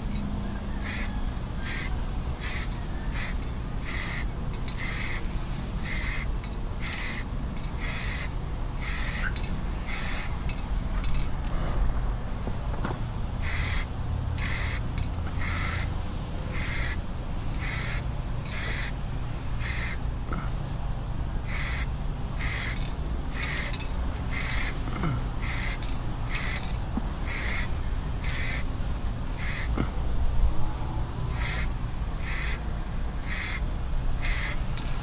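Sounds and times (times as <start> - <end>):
steady low hum: 0.0 - 35.0
spray paint hissing in bursts: 0.8 - 11.2, 13.4 - 20.1, 21.4 - 28.7, 29.3 - 29.8, 31.3 - 32.6, 33.2 - 35.0.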